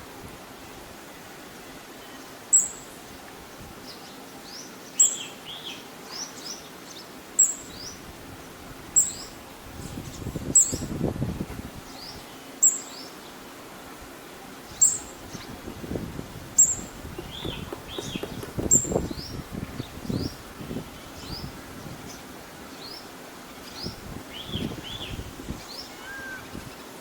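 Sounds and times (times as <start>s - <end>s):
bird twittering: 16.6s - 19.4s, 24.4s - 26.6s.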